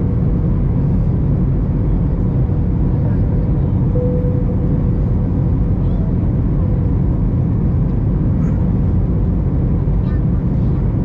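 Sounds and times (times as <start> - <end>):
airliner cabin engine noise: 0.0 - 11.0
faint steady tone: 3.9 - 5.1.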